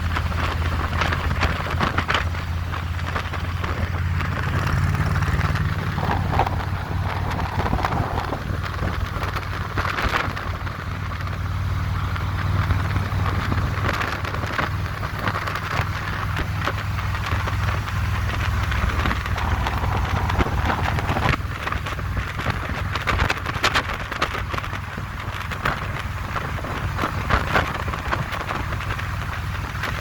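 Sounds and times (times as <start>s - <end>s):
motorcycle engine rumbling: 0.0s - 30.0s
wind rushing over microphone: 0.0s - 30.0s.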